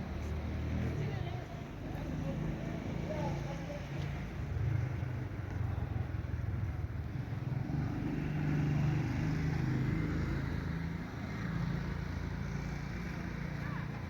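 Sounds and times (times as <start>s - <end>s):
constant background noise: 0.0s - 14.0s.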